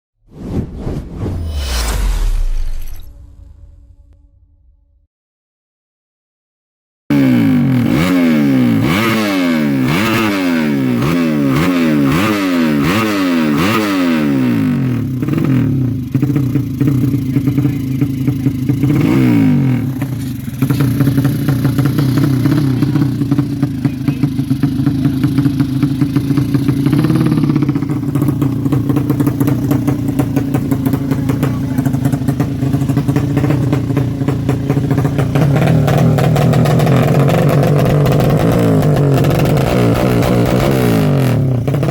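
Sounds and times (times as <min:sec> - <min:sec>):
motorcycle engine revving: 0:07.1 - 0:41.9.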